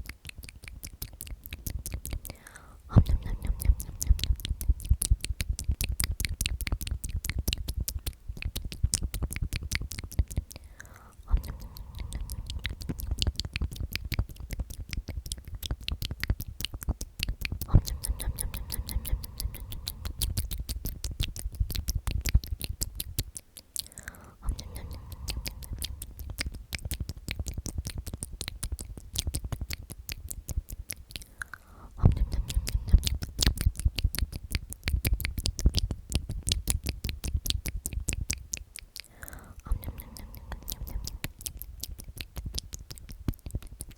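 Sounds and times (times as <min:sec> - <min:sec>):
wet lip and tongue clicks: 0:00.0 - 0:43.9
person whispering: 0:02.1 - 0:05.1, 0:10.6 - 0:13.4, 0:17.6 - 0:21.2, 0:23.8 - 0:26.5, 0:31.3 - 0:33.3, 0:39.1 - 0:41.5.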